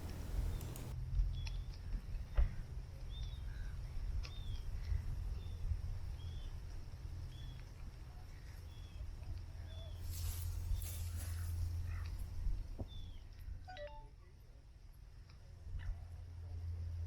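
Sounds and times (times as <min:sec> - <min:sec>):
small birds chirping: 0:00.0 - 0:01.7, 0:07.2 - 0:13.3.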